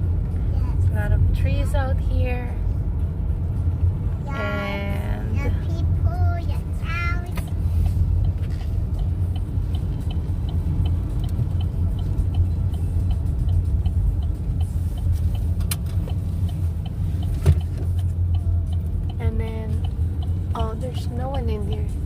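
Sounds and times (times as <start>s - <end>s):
road and engine noise: 0.0s - 22.0s
light regular ticking: 7.2s - 22.0s.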